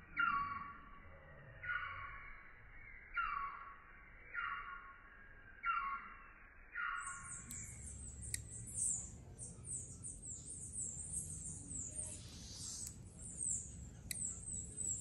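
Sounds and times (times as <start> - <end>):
small birds chirping: 0.0 - 6.1, 6.8 - 15.0
faint clicks: 7.2 - 8.7, 12.7 - 13.0, 14.0 - 14.6.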